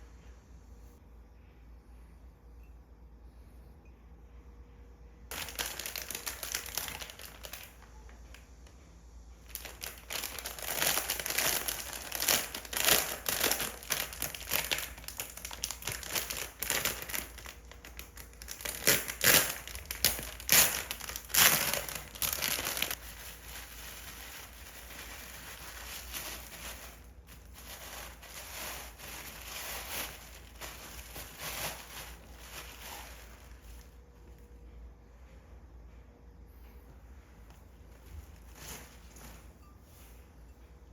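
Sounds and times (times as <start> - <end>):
packaging wrapping crinkling: 5.3 - 8.5, 9.4 - 34.0, 37.9 - 39.4.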